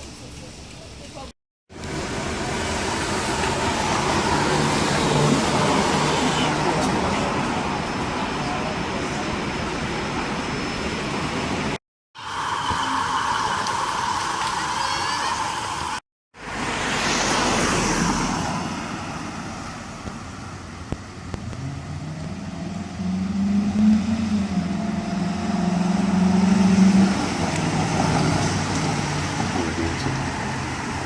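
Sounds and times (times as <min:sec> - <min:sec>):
road traffic noise: 0:00.0 - 0:31.0
heavy vehicle engine droning: 0:01.7 - 0:14.8.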